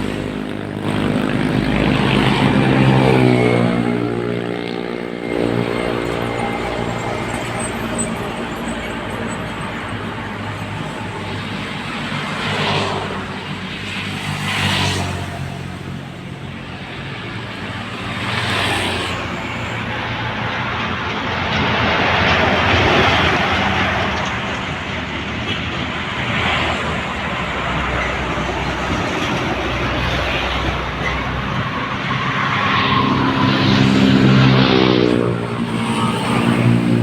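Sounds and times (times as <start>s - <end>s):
truck engine drone: 0.0s - 37.0s
tyre and road noise: 0.0s - 37.0s
vehicle accelerating: 17.8s - 37.0s.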